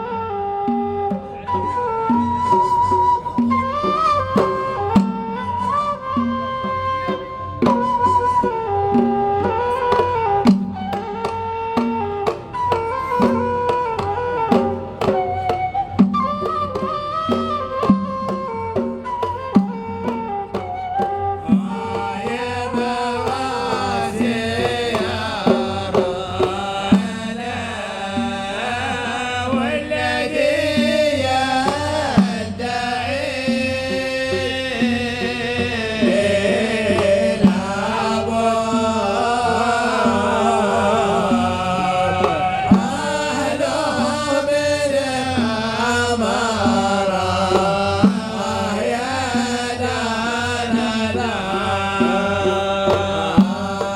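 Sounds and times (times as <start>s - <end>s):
hand drum beat: 0.0s - 53.9s
chanted singing: 21.4s - 53.9s.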